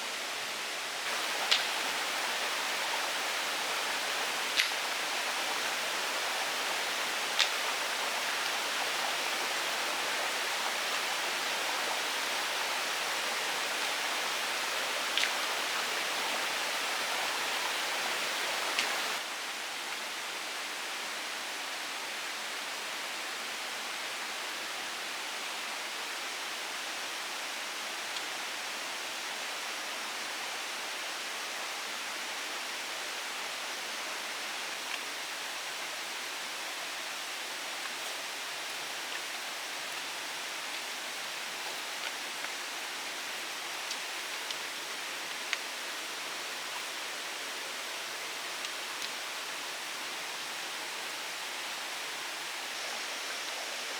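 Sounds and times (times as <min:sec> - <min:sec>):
faint clicks: 0:01.1 - 0:02.1, 0:04.5 - 0:04.8, 0:07.3 - 0:07.7
water hissing: 0:01.1 - 0:08.9.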